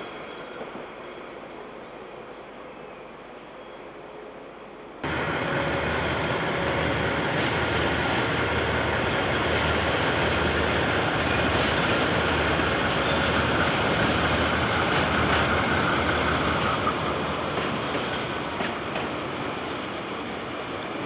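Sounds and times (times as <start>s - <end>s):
diesel locomotive engine: 0.0s - 21.0s
freight wagons rolling on track: 5.0s - 19.8s.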